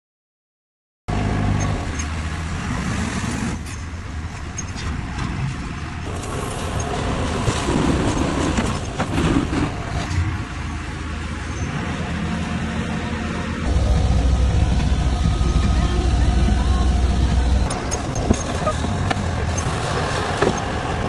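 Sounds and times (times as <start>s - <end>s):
concrete mixer engine running: 9.2s - 21.0s.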